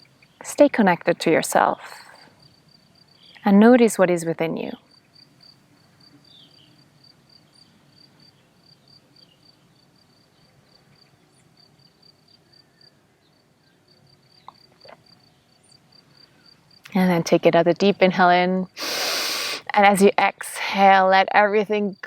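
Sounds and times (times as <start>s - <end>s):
cricket chirping: 0.0s - 3.5s, 4.8s - 16.9s
low background noise: 0.0s - 22.0s.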